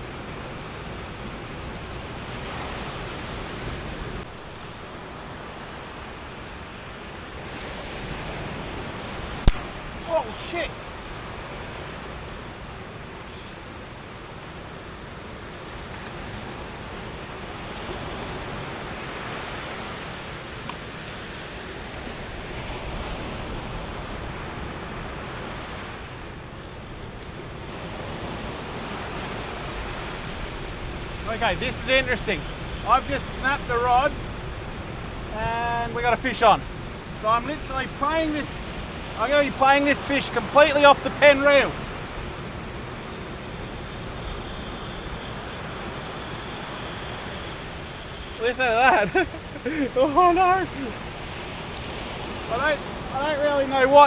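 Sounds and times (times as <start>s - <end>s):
surf washing onto beach: 16.0s - 54.0s
wind on microphone: 16.4s - 49.8s
faint ticks: 17.4s - 17.6s, 26.4s - 28.8s, 29.7s - 35.3s, 41.8s - 49.8s, 50.8s - 52.1s.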